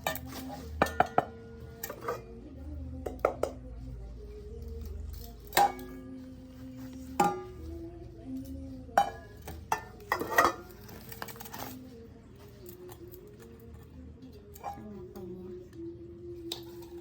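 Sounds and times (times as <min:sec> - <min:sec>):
cookware clinking: 0:00.0 - 0:02.3, 0:03.0 - 0:03.7, 0:05.3 - 0:06.3, 0:07.1 - 0:07.7, 0:08.9 - 0:11.6.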